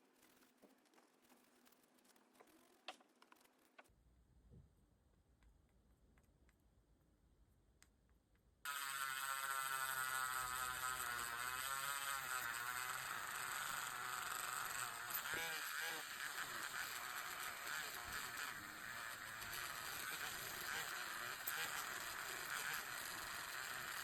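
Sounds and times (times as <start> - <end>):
small motor buzzing whine: 8.6 - 24.0.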